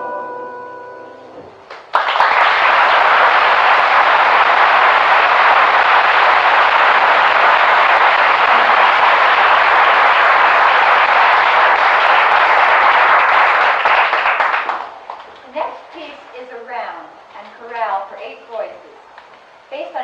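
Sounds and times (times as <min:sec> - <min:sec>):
audience applause: 0:01.7 - 0:15.4.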